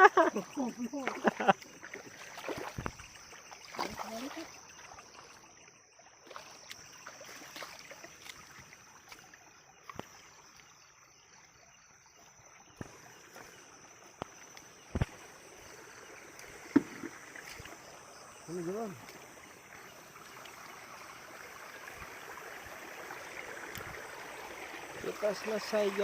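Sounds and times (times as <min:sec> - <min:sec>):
sharp splashes: 0:00.0 - 0:10.6
shallow water sloshing and trickling: 0:00.0 - 0:26.0.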